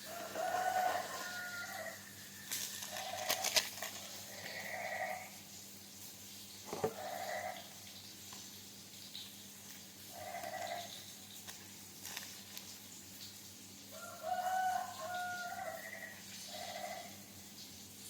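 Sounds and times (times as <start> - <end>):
rooster crowing: 0.0 - 3.6, 13.9 - 17.2
faint steady hum: 0.0 - 18.0.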